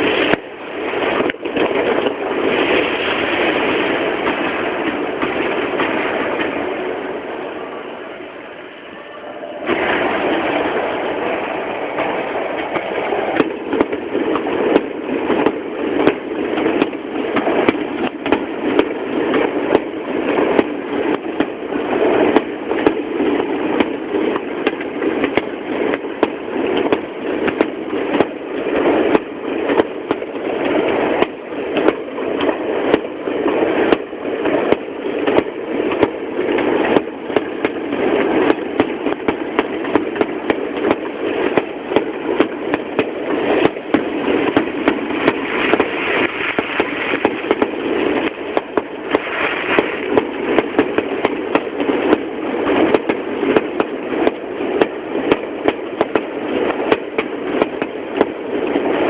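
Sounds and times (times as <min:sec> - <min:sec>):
dull rumble: 0:00.0 - 0:59.0
fireworks bangs and crackles: 0:38.4 - 0:58.4.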